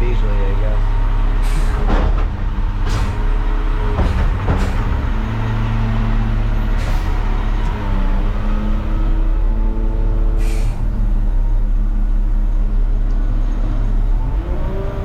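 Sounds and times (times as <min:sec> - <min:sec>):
diesel truck engine running: 0:00.0 - 0:15.0
air hissing: 0:10.4 - 0:11.0.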